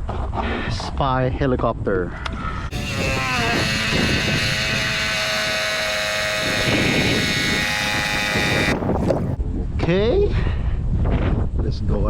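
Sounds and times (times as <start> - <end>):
small electric motor whining: 2.2 - 9.4.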